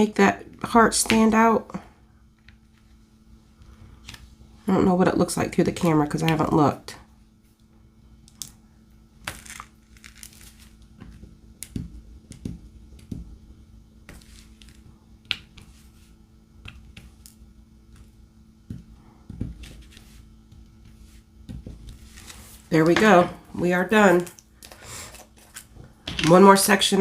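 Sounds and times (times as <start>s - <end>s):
plastic film rustling: 9.3s - 10.9s.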